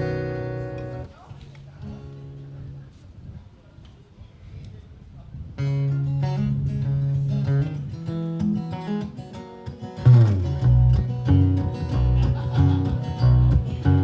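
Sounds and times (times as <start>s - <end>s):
picked baritone guitar: 0.0s - 3.0s, 5.6s - 14.0s
deep bass line: 10.1s - 14.0s.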